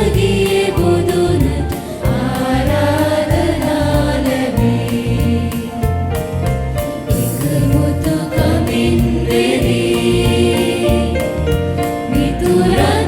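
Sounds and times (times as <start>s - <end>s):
choir singing a church song: 0.0s - 13.0s
musical accompaniment with bass beat: 0.0s - 13.0s.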